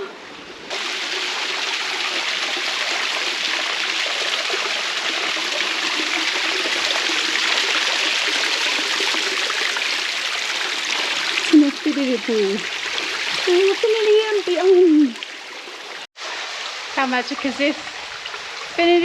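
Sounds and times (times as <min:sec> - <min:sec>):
water splashing down waterfall: 0:00.7 - 0:15.4.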